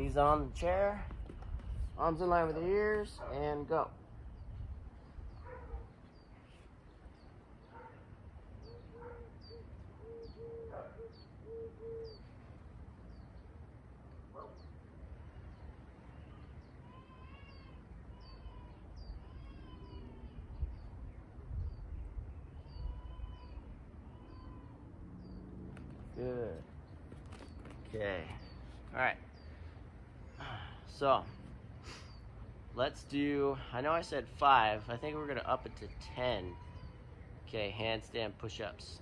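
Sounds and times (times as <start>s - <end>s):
birds chirping: 0.0s - 39.0s
arched bird calls: 5.1s - 13.5s, 14.4s - 32.6s.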